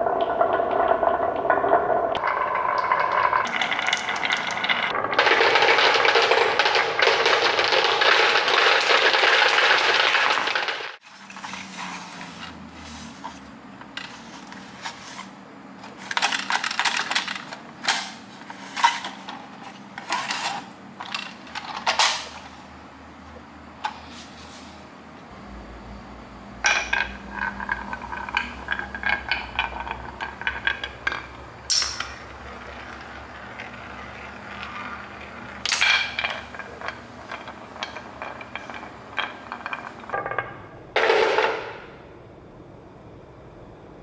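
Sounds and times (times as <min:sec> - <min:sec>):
marbles rolling and clattering: 0:00.0 - 0:22.6, 0:26.5 - 0:41.8
low motor hum: 0:11.1 - 0:40.1.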